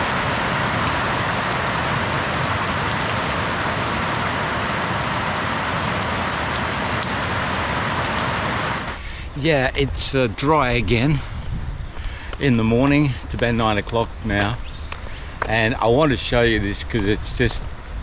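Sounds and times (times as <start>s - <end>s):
heavy rain pouring: 0.0s - 9.0s.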